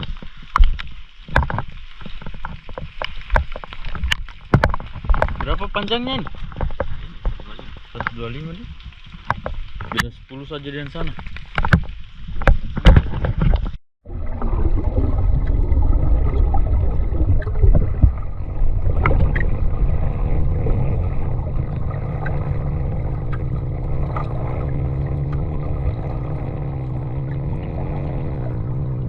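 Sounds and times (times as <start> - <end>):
boat engine running: 16.2 - 29.0.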